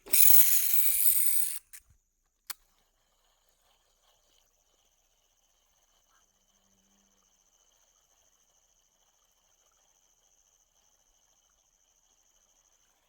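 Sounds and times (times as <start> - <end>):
night insects chirring: 5.0 - 13.0.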